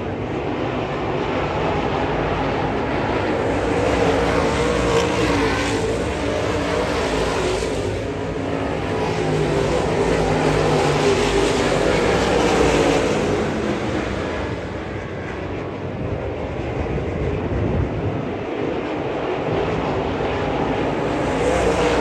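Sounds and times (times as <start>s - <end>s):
race car engines running hard: 0.0s - 22.0s.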